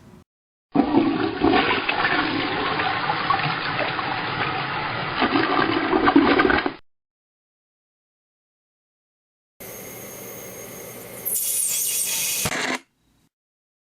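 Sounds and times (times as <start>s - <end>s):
toilet flushing: 0.8s - 6.8s.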